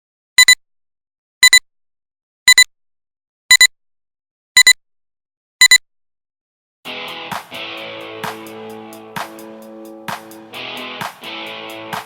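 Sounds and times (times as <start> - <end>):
electronic double beeps: 2.5 - 2.7.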